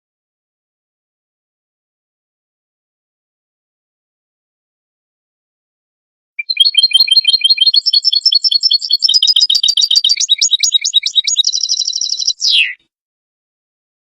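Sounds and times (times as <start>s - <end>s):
goldfinch twittering song: 6.4s - 12.8s.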